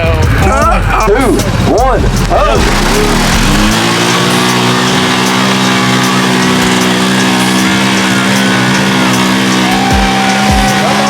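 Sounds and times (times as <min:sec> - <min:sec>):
engine at high revs: 0:01.1 - 0:11.0.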